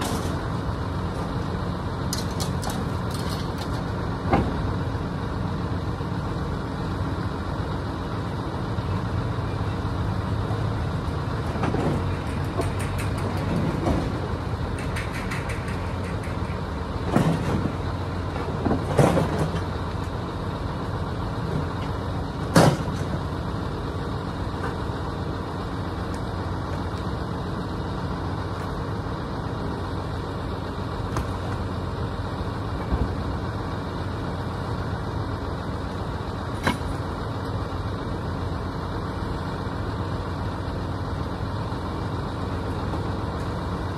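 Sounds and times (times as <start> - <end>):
vehicle engine rumbling: 0.0 - 43.9
sharp knocks or clanks: 11.6 - 17.7.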